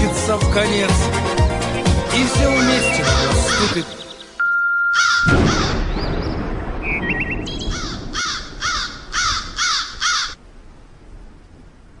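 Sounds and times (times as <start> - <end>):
crow cawing: 2.5 - 3.9, 5.0 - 5.8, 7.7 - 10.4.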